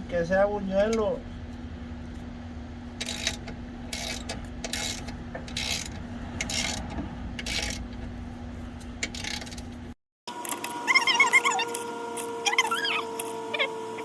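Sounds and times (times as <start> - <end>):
steady low hum: 0.0 - 10.0
ratchet wrench clicking: 3.0 - 8.0, 9.0 - 9.7.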